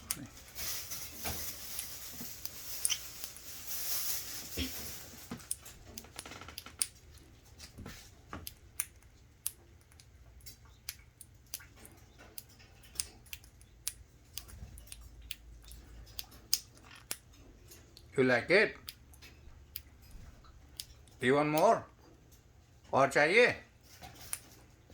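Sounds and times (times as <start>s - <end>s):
bird beak clicking: 1.6s - 3.4s, 5.4s - 18.1s, 18.8s - 21.7s.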